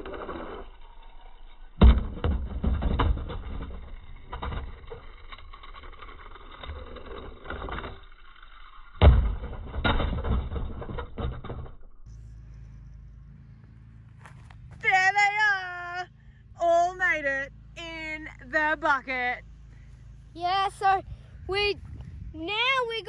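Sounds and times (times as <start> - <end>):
toy cars clattering on plastic track: 0.0 - 11.9
steady low hum: 0.0 - 23.0.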